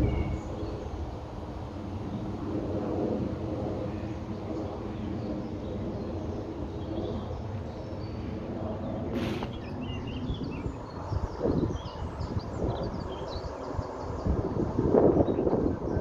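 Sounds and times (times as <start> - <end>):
burst of noise: 9.1 - 9.8.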